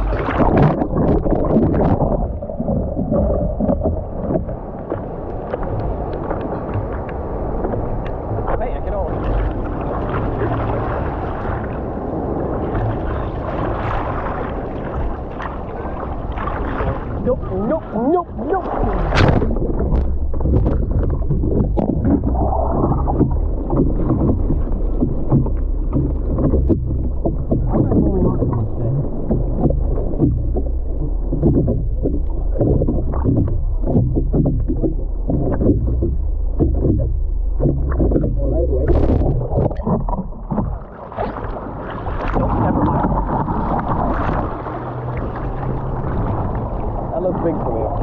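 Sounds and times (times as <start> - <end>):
seawater sloshing and splashing: 0.0 - 48.0
wind rumbling on microphone: 0.0 - 48.0.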